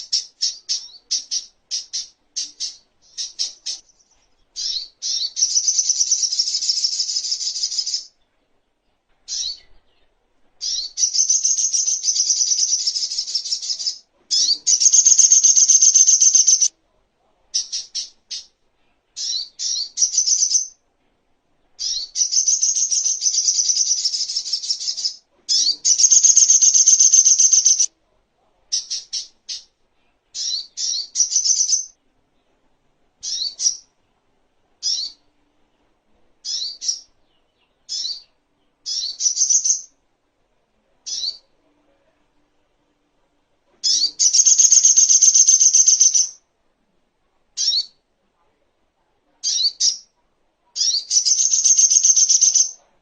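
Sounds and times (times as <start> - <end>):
bird twittering trills: 10.6 - 16.7, 21.8 - 27.9, 43.8 - 46.4, 50.8 - 52.8.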